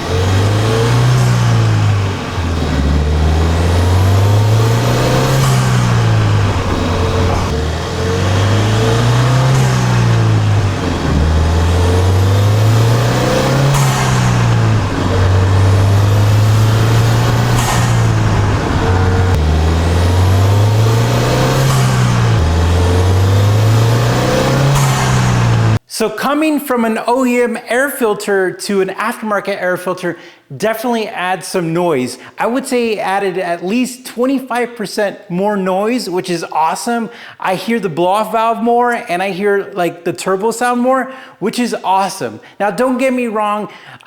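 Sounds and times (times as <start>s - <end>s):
blow-off valve venting: 0.0s - 25.8s
car engine accelerating: 0.0s - 25.8s
turbo whine: 0.0s - 25.8s.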